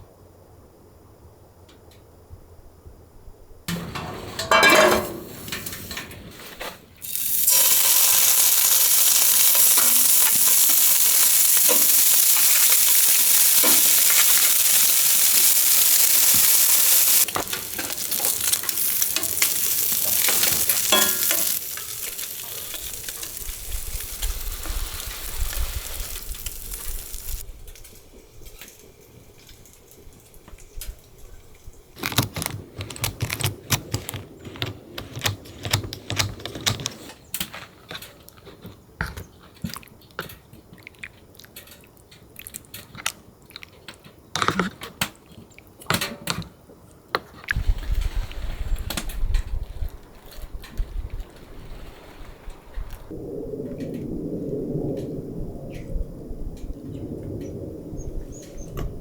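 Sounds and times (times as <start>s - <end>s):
food sizzling in a pan: 7.0s - 27.4s.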